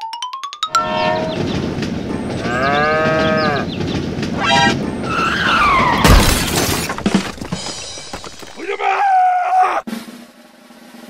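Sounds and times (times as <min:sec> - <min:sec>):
background music: 0:00.0 - 0:03.8
loud crash of bricks: 0:05.6 - 0:08.8.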